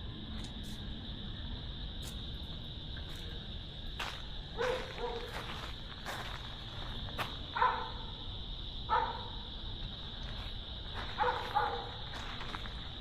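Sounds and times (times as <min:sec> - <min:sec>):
cricket chorus chirring: 0:00.0 - 0:13.0.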